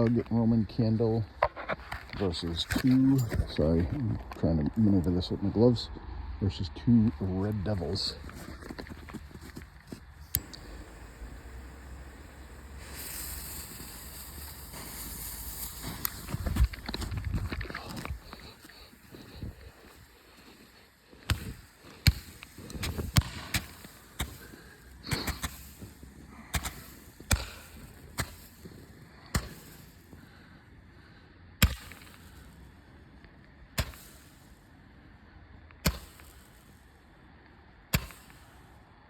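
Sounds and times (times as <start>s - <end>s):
roman candles firing pops: 7.8s - 30.5s, 31.6s - 34.6s, 35.7s - 36.7s, 37.8s - 38.7s.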